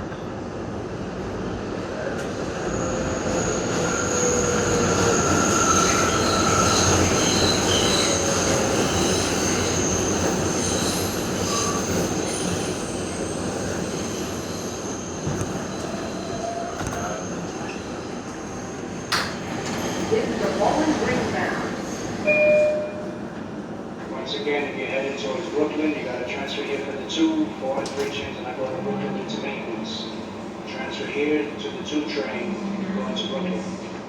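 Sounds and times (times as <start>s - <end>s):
subway train wheels rumbling: 0.0s - 34.0s
high squeals of wheels and brakes: 2.5s - 20.2s.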